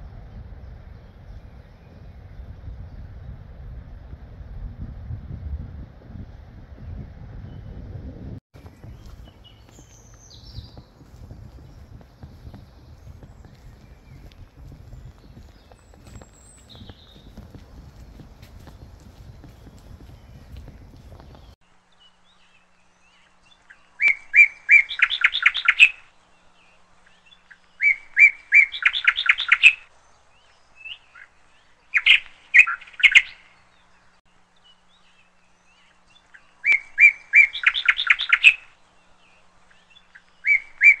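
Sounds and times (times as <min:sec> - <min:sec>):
songbird singing with trill: 0:08.6 - 0:41.0.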